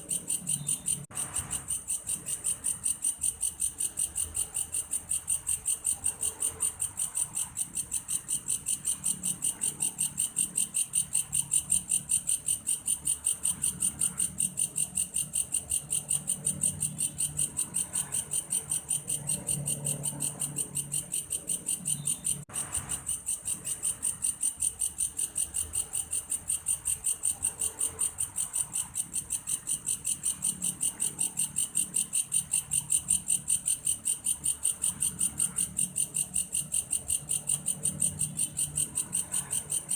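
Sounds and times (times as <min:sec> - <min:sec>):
grasshopper high trill: 0:00.0 - 0:39.9.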